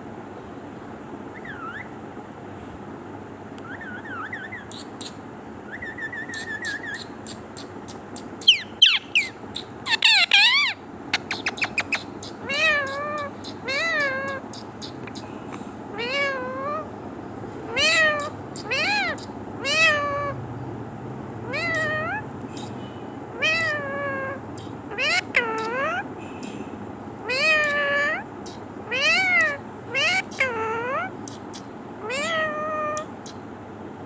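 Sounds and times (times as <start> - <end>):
parrot calls: 1.3 - 2.0, 3.6 - 16.9, 17.7 - 20.4, 21.4 - 26.6, 27.2 - 33.4
parrot whistling and clicking: 3.6 - 5.2, 5.8 - 16.8, 17.8 - 20.3, 21.5 - 26.6, 27.3 - 33.4
parrot meow-like calls: 5.7 - 16.9, 17.7 - 20.4, 21.4 - 26.1, 27.2 - 33.4.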